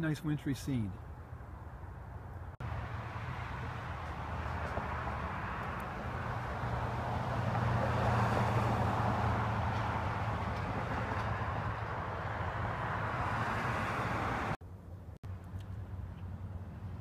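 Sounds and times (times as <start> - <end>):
road traffic rush: 0.0 - 17.0
vehicle passing: 1.5 - 14.6.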